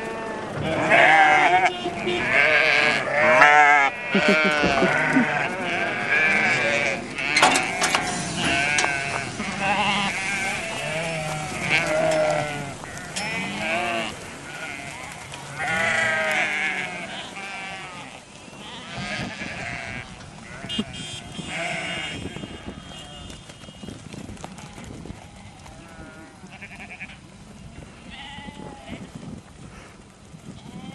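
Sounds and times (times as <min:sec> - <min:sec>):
sheep bleating: 0:00.0 - 0:23.4.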